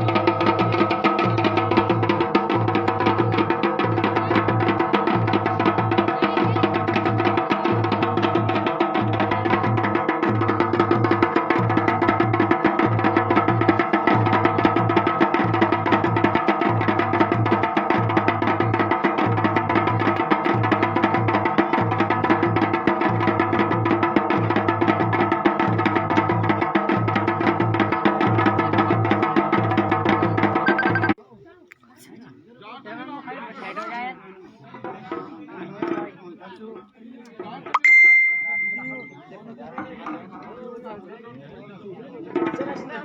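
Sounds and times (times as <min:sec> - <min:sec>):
drums in fast rhythm: 0:00.0 - 0:31.2, 0:37.4 - 0:39.2.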